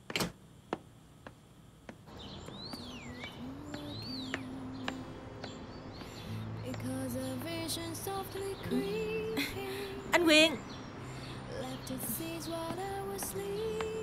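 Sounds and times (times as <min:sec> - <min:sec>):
bird whistling: 0:02.2 - 0:06.9
soft background music: 0:02.2 - 0:14.0.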